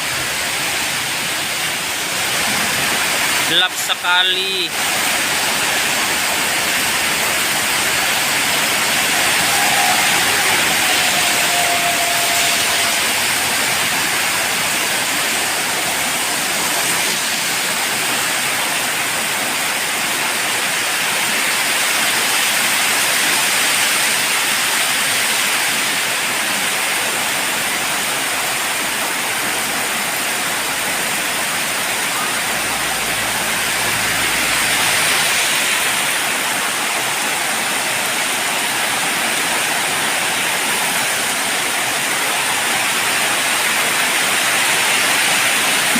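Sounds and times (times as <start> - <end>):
heavy rain pouring: 0.0 - 45.9
wind: 0.0 - 45.9.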